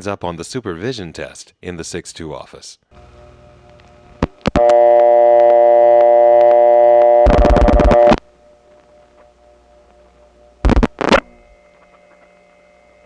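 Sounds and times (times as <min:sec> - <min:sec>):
low line hum: 0:03.0 - 0:13.0
dial-pulse clicks: 0:03.8 - 0:08.2, 0:10.6 - 0:12.4
telephone line clicks: 0:04.2 - 0:08.2
buzzy telephone dial tone: 0:04.4 - 0:08.2.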